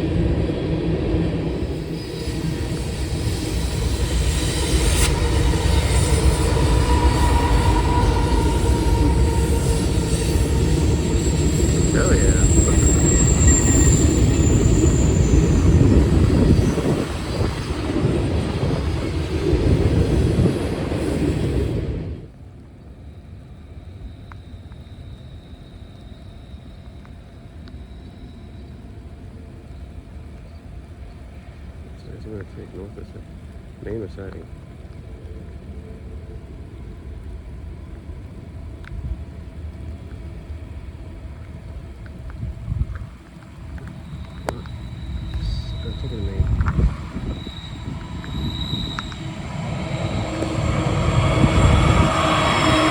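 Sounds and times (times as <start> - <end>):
wind noise on microphone: 0.0 - 22.3, 38.1 - 52.9
freight train rolling past: 0.0 - 52.9
low vehicle rumble: 28.7 - 52.9.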